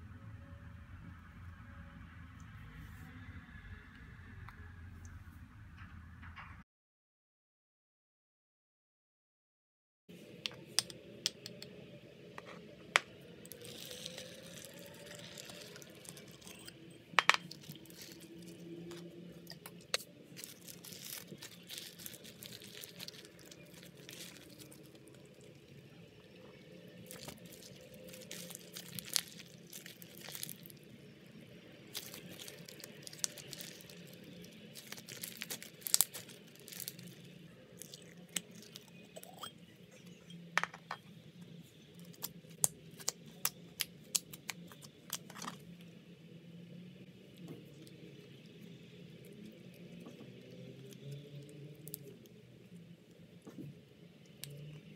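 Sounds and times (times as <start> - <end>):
slime crackling and popping: 17.5 - 25.3, 27.0 - 30.8, 31.8 - 39.3.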